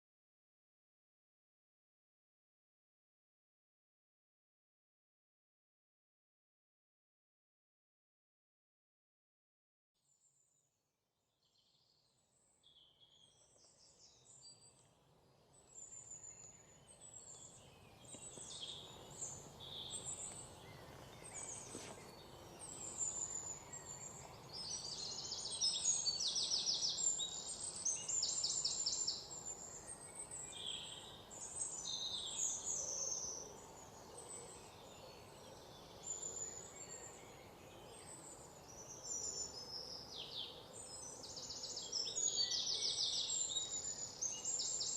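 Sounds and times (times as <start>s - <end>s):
small birds chirping and trilling: 11.4s - 44.9s.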